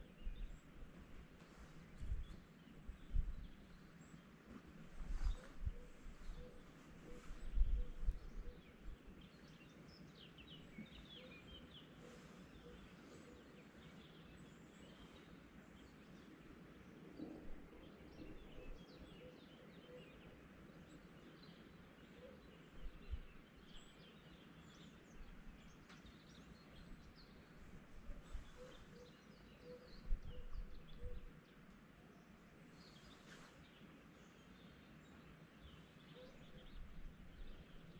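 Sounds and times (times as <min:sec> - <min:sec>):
distant birds chirping: 0:17.6 - 0:37.9.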